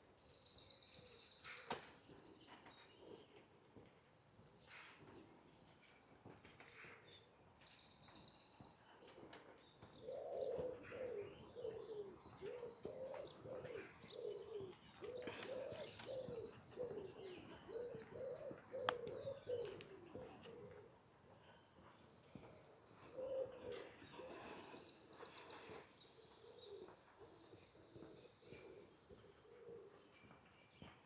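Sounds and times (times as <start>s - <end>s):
songbird trills: 4.4s - 20.8s, 22.4s - 31.0s
pigeon cooing: 9.1s - 21.0s, 23.0s - 30.4s.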